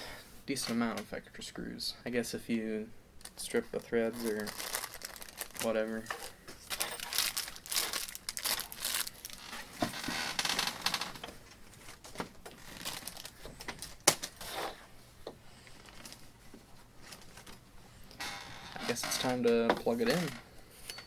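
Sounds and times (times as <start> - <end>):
plastic packaging crinkling: 3.2 - 14.7, 15.7 - 16.3, 17.0 - 17.6.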